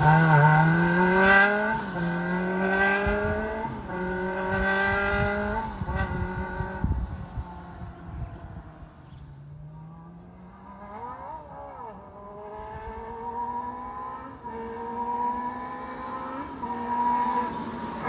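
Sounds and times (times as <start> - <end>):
motorcycle engine revving: 0.0 - 7.6.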